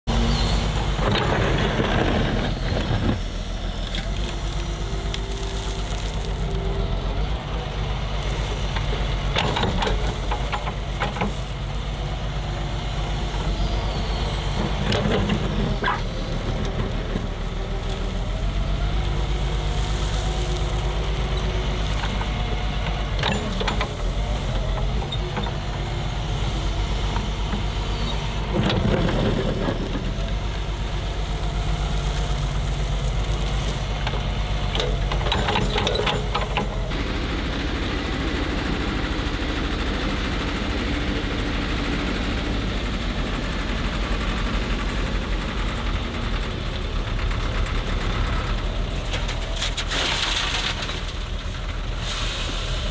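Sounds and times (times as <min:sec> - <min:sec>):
diesel engine of heavy machinery: 0:00.0 - 0:52.9.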